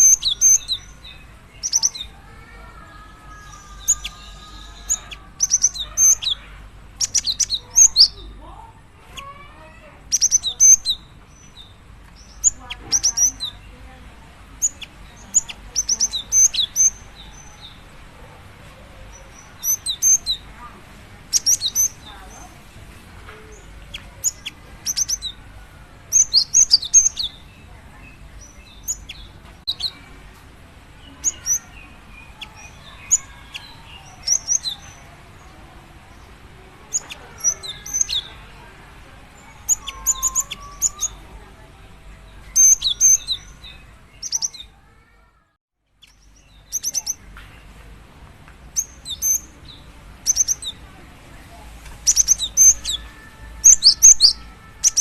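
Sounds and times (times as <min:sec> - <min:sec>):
bird high thin chirps: 0:00.0 - 0:02.1, 0:03.3 - 0:08.3, 0:09.1 - 0:13.6, 0:14.6 - 0:17.8, 0:21.3 - 0:22.5, 0:23.5 - 0:25.4, 0:26.1 - 0:27.5, 0:28.4 - 0:30.0, 0:31.2 - 0:35.0, 0:36.9 - 0:38.4, 0:39.4 - 0:41.2, 0:46.0 - 0:47.2, 0:48.8 - 0:50.8, 0:51.8 - 0:55.0.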